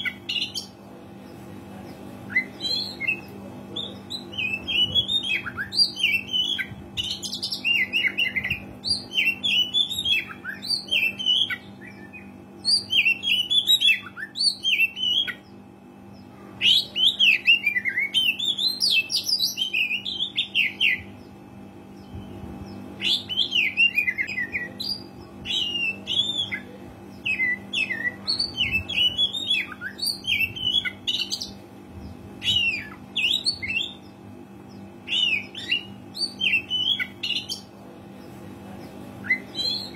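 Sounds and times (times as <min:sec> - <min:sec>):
faint steady hum: 0:00.0 - 0:39.9
bird singing whistled phrases: 0:35.1 - 0:37.6, 0:39.2 - 0:39.9.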